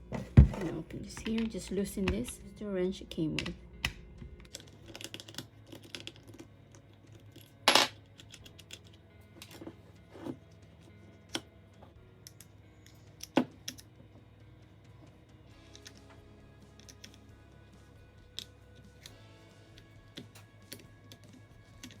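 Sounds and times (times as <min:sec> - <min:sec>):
metal parts clicking and clinking: 0:04.4 - 0:10.4, 0:12.2 - 0:13.9, 0:15.6 - 0:16.2, 0:19.8 - 0:22.0.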